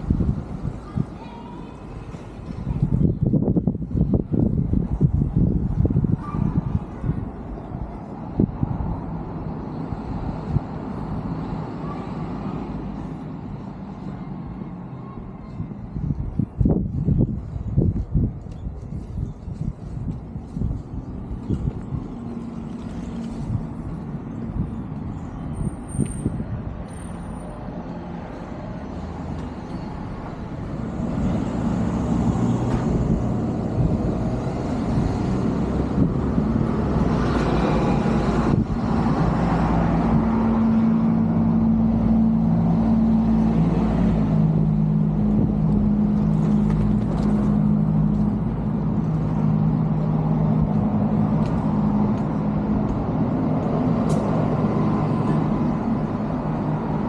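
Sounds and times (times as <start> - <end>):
road traffic: 0.0 - 57.0
heavy vehicle engine droning: 28.3 - 57.0.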